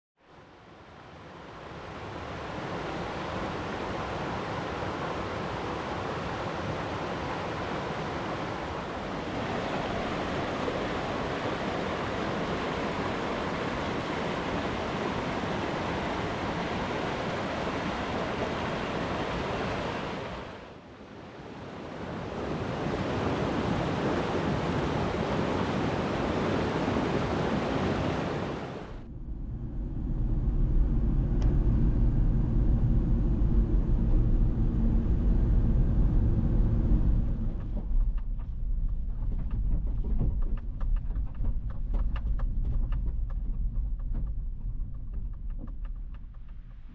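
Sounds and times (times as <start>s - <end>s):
river water rushing: 0.7s - 29.0s
steady low rumble: 28.9s - 46.9s.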